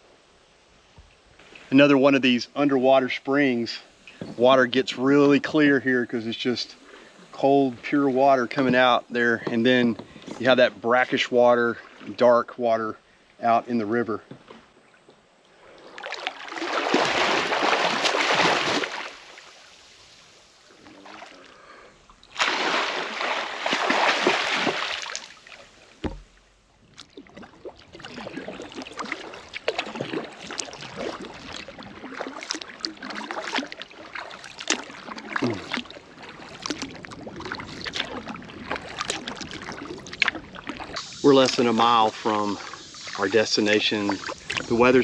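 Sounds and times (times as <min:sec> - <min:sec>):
water dripping from paddle: 0:04.0 - 0:04.3, 0:20.8 - 0:45.0
paddle splashing water: 0:06.6 - 0:45.0.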